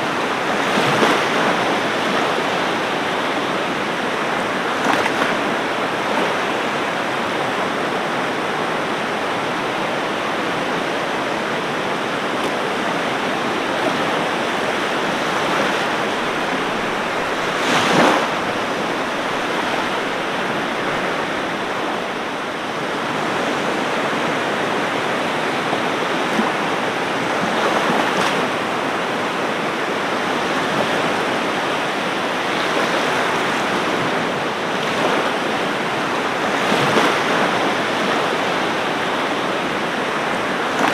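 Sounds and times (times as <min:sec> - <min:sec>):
ocean waves washing onto beach: 0:00.0 - 0:40.9.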